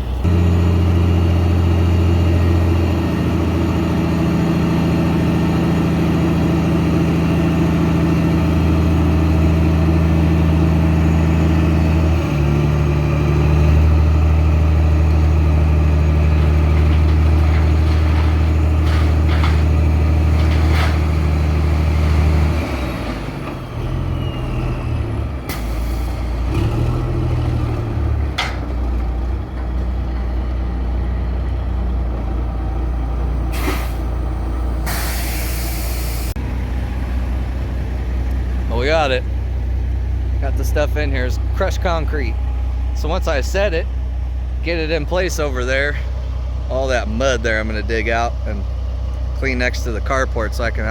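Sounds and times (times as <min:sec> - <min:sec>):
diesel truck engine running: 0:00.0 - 0:50.9
short air hisses: 0:33.5 - 0:34.0, 0:34.8 - 0:36.4.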